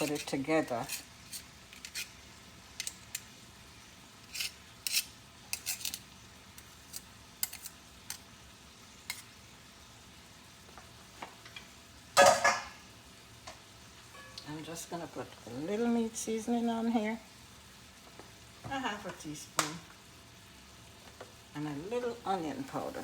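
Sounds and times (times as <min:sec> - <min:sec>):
utensil tapping and scraping cookware: 0:00.0 - 0:02.2, 0:02.8 - 0:03.3, 0:04.2 - 0:06.0, 0:06.6 - 0:08.2, 0:12.2 - 0:12.8, 0:13.5 - 0:14.5
cookware clatter: 0:12.2 - 0:12.8, 0:14.1 - 0:14.4.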